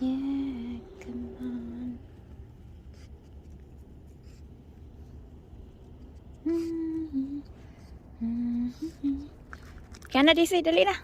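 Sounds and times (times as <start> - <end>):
low steady rumble: 0.0 - 11.0
woman humming: 6.4 - 7.5, 8.2 - 9.4.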